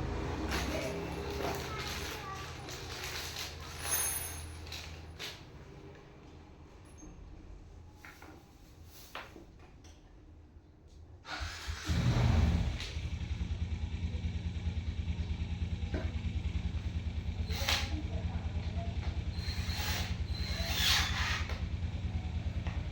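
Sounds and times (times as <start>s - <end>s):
engine starting and idling: 11.3s - 22.9s.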